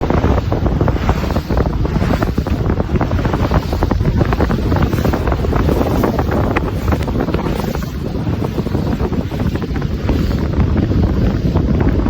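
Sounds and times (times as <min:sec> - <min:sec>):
rushing water and waves: 0:00.0 - 0:12.0
wind buffeting microphone: 0:00.0 - 0:12.0.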